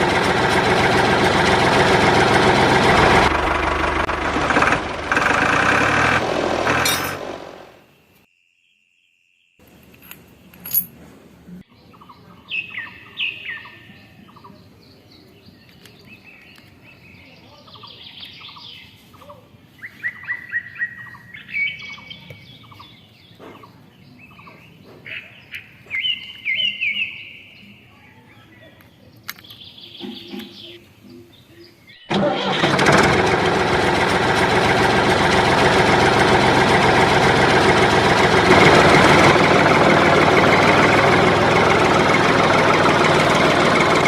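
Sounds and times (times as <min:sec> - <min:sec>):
faint outdoor background noise: 0:06.7 - 0:32.6
birds chirping and calling: 0:11.7 - 0:32.1.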